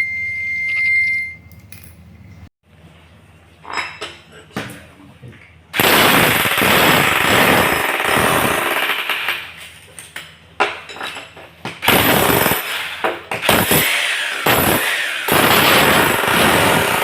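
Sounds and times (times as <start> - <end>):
demolition hammer chiselling concrete: 5.8 - 9.4, 11.8 - 17.0.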